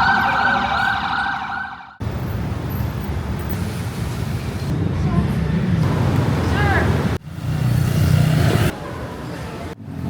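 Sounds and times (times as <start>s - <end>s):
emergency siren wailing: 0.0s - 2.0s
city traffic noise: 0.0s - 10.0s.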